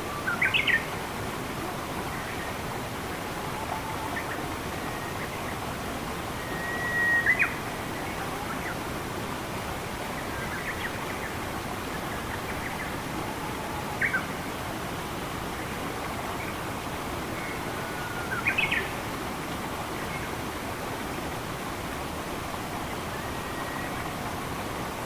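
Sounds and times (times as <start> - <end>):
flowing water rushing: 0.0 - 25.0
bird whistling and chirping: 6.4 - 7.6.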